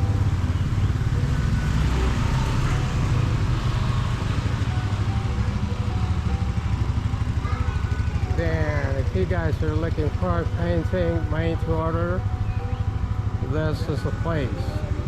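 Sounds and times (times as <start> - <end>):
faint music: 0.0 - 15.0
motorbike engine running: 0.0 - 15.0.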